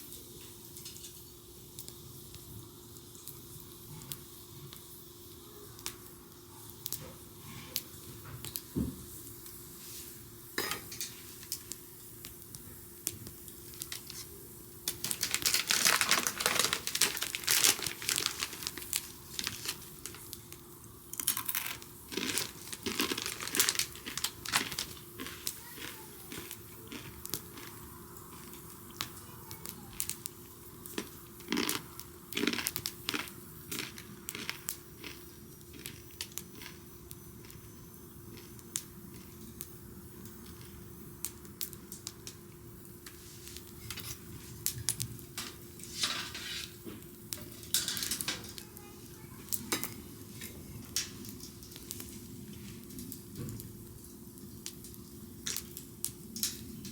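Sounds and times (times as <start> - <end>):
faint steady hum: 0.0 - 56.9
bonfire crackling and popping: 0.1 - 9.7, 10.6 - 56.9
dense crinkling: 13.7 - 20.6, 21.2 - 26.5.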